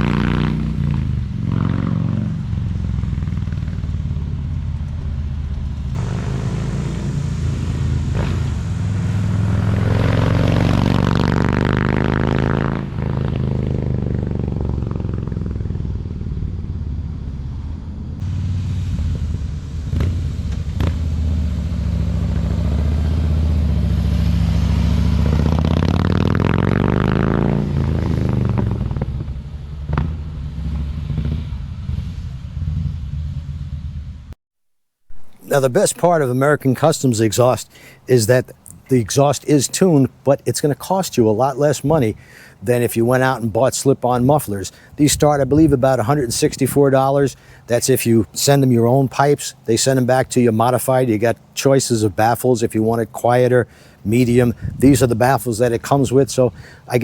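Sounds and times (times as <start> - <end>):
motorcycle engine idling and revving: 0.0 - 34.4, 44.0 - 47.0.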